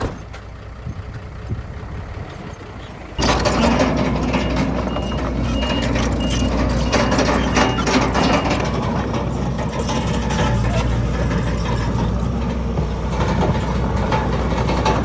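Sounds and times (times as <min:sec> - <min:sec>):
diesel engine rumbling: 0:00.0 - 0:15.0
metal clanking: 0:02.6 - 0:15.0
reversing alarm beeps: 0:03.2 - 0:08.9.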